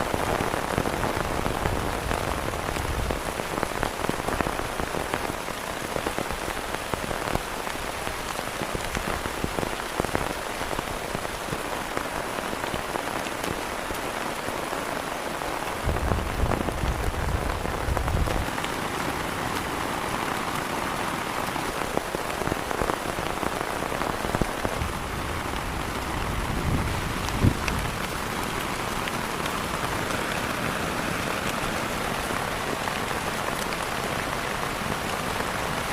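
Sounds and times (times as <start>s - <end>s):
heavy rain falling: 0.0s - 35.9s
raindrops striking close by: 0.0s - 35.9s.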